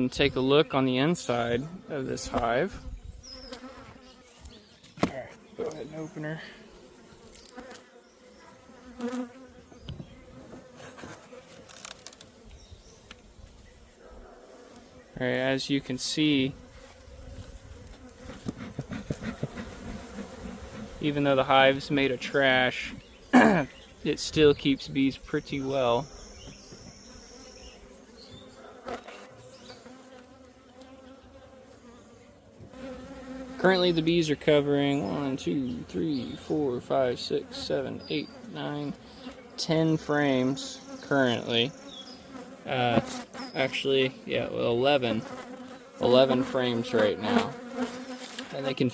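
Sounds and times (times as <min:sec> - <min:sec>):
bees buzzing: 0:00.2 - 0:48.9
hive scrapes and knocks: 0:08.9 - 0:12.4, 0:16.6 - 0:22.1, 0:41.8 - 0:43.8, 0:45.2 - 0:48.9.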